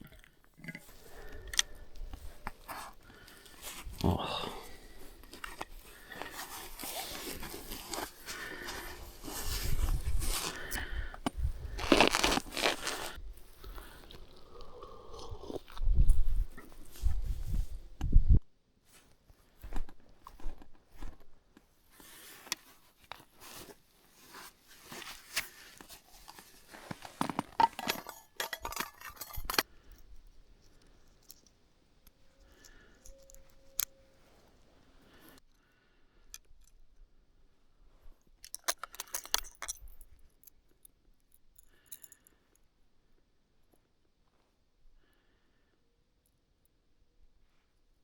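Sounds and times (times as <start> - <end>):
small things clicking and rustling: 4.8 - 13.2, 24.8 - 35.6, 38.2 - 42.7.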